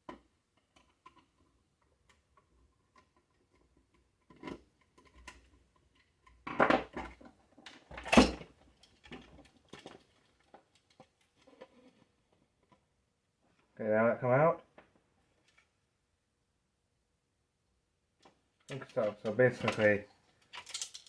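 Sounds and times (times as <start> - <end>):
small parts clicking and knocking: 0.0 - 12.8, 18.2 - 21.0.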